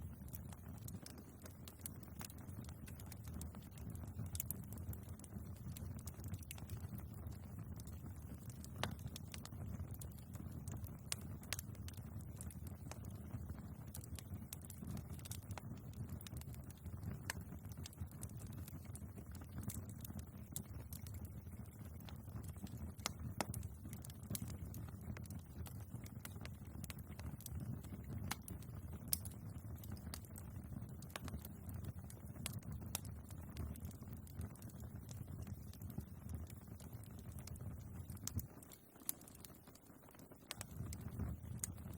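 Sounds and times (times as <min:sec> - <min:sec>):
fire crackling and popping: 0:00.0 - 0:41.9
low rumble of flames: 0:00.0 - 0:41.9.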